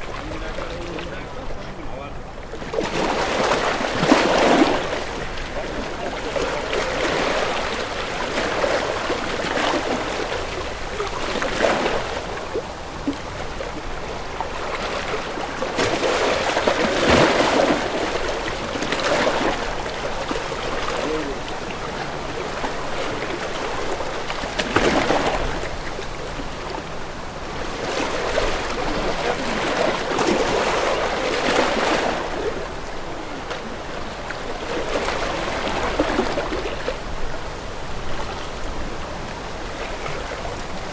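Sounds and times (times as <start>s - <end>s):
sea waves washing: 0.0s - 40.9s.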